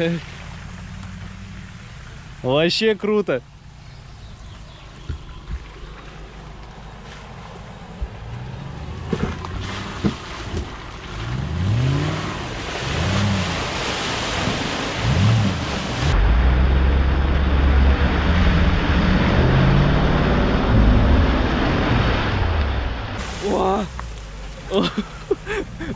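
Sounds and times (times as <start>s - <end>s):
water splashing: 0.0s - 16.2s, 21.2s - 25.9s
off-road vehicle engine revving: 0.0s - 25.9s.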